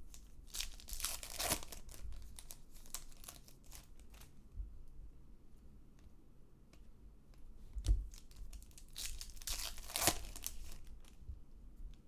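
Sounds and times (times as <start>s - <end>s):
card pack wrapper tearing and crinkling: 0.5s - 4.3s, 8.1s - 11.2s.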